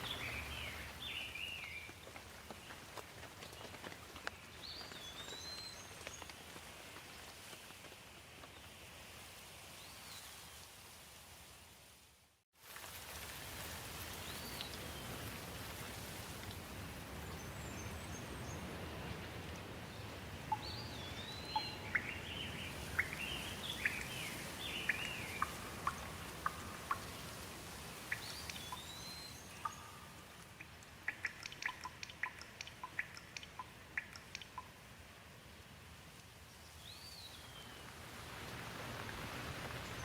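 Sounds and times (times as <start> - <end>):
rain hiss: 0.0 - 40.0
falling drops ticking: 29.6 - 34.8.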